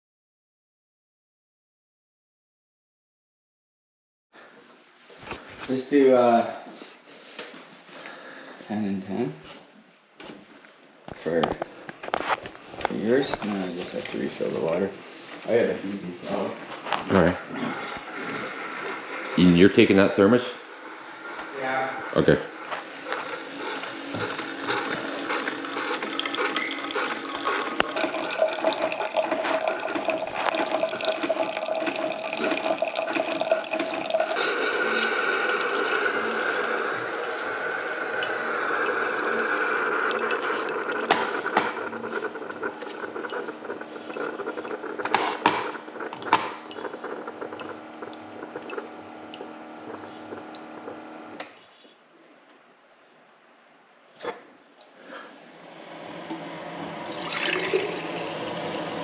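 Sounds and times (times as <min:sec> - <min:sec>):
water pouring into container: 0:22.1 - 0:50.7, 0:56.4 - 0:59.0.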